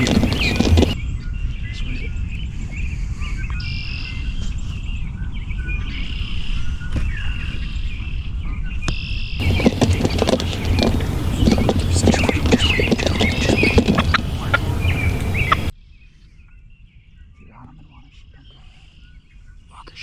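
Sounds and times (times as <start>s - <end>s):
songbirds chirping: 0.0s - 1.0s, 9.4s - 15.7s.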